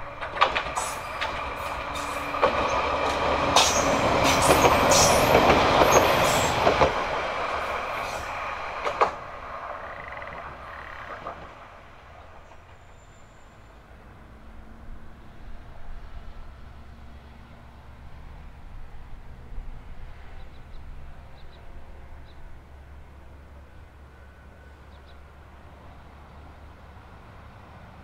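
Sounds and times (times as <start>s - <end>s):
wheels knocking on rail joints: 0.0s - 7.7s
diesel railcar passing: 0.0s - 28.0s.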